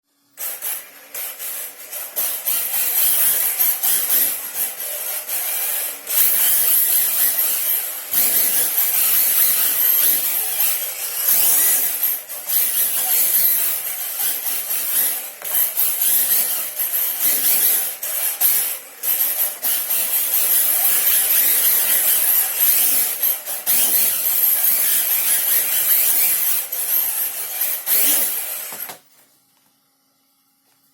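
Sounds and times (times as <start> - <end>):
electric motor and gears whining: 0.1 - 29.8
tyres scrubbing across floor: 0.4 - 29.3.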